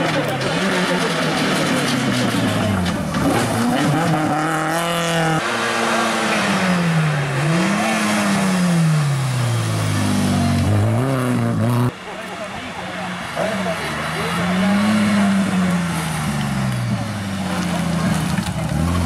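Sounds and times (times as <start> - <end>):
rally car engines revving: 0.0 - 19.0.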